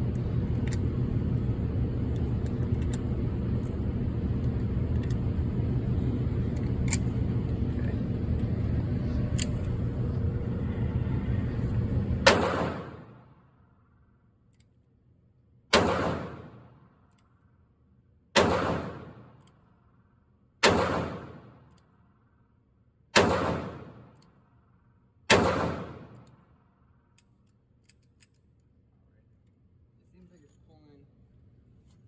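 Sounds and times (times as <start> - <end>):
revolver shots echoing: 12.2 - 13.2, 15.8 - 16.6.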